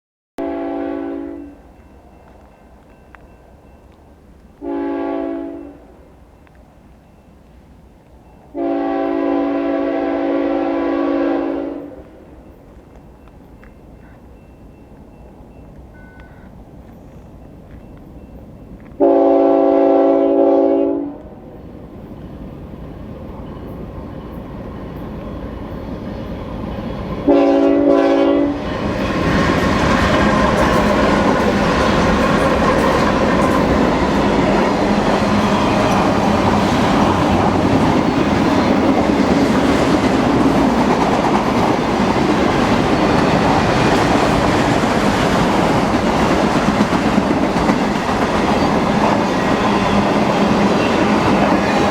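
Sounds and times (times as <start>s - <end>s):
locomotive horn blast: 0.4s - 1.6s, 4.6s - 5.9s, 8.5s - 12.0s, 19.0s - 21.4s, 27.3s - 28.7s
train rumble: 0.4s - 51.9s
train wheels clacking on rail: 21.2s - 51.9s.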